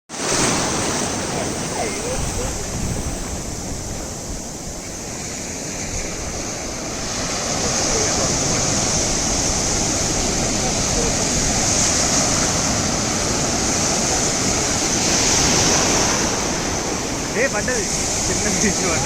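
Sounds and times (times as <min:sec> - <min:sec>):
sea surf washing onto beach: 0:00.1 - 0:19.0.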